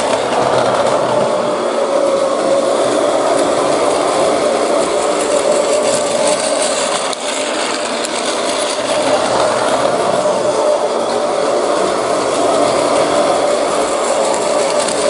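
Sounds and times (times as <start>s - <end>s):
hiss: 0.0s - 15.0s
train running with mechanical hum: 0.0s - 15.0s.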